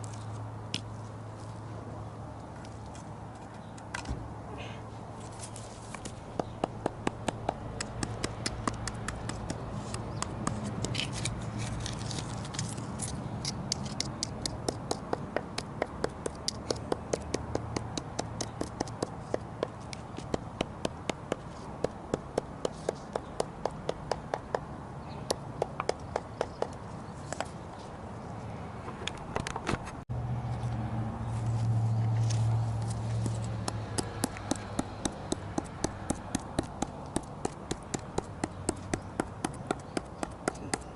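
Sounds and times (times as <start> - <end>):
carving tool gouging wood: 33.2 - 40.9.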